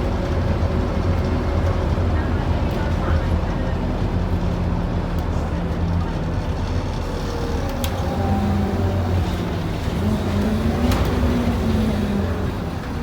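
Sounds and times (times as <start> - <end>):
bus engine droning: 0.0 - 13.0.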